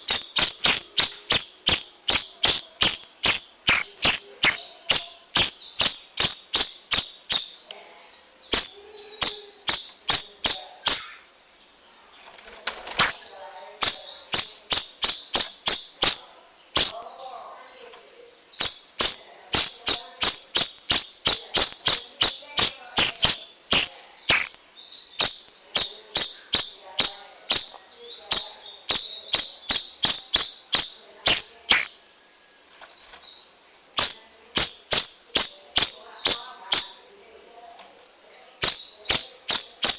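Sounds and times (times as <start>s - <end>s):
bird singing rapid high notes: 0.0s - 7.7s, 8.4s - 37.4s, 38.6s - 39.9s.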